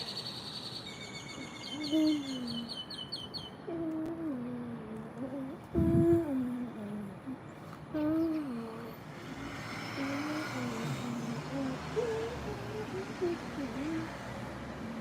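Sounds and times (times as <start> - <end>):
person humming: 1.8 - 2.7, 3.7 - 9.0, 10.0 - 14.1.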